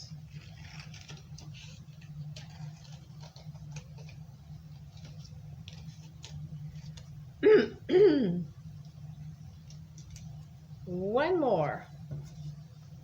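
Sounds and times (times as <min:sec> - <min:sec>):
paper rustling: 0:00.0 - 0:07.2
steady low hum: 0:00.0 - 0:13.0.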